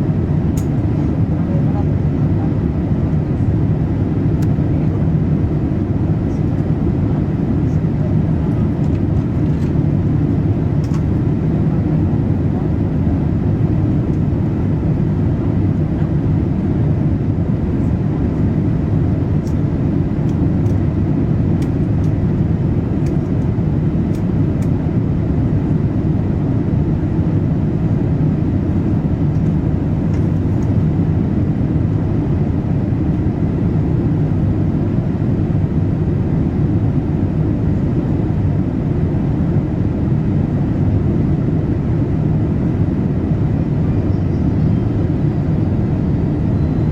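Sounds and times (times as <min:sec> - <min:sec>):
airliner cabin engine rumble: 0:00.0 - 0:46.9.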